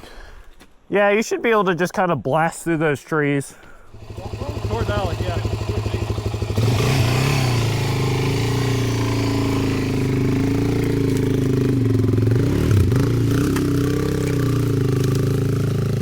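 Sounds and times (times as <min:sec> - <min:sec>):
motorcycle engine revving: 0:03.9 - 0:16.0.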